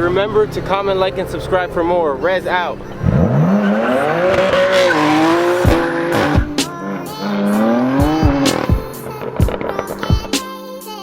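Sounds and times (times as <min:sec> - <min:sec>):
car engine accelerating hard: 0:00.0 - 0:10.4
music with sharp beat: 0:04.8 - 0:10.6.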